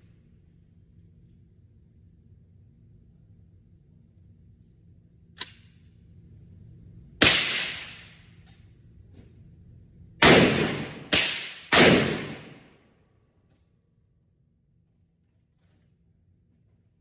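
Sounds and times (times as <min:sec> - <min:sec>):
sharp click: 0:05.4 - 0:05.7
airsoft gun shots: 0:07.2 - 0:08.1, 0:10.2 - 0:12.7.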